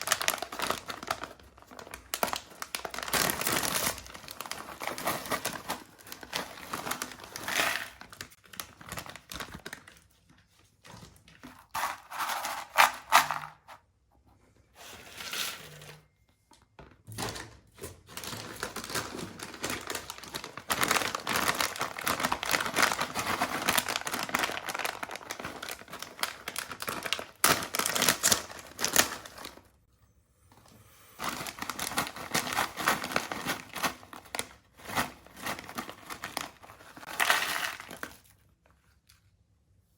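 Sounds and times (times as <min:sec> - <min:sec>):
plastic snack packets crinkling: 0:00.0 - 0:10.4, 0:18.0 - 0:29.7, 0:31.2 - 0:39.2.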